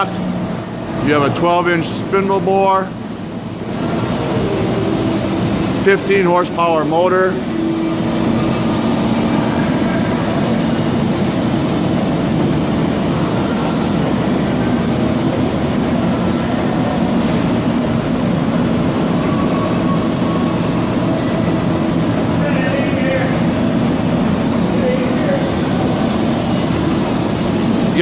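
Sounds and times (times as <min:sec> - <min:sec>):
industrial lathe humming: 0:00.0 - 0:28.0.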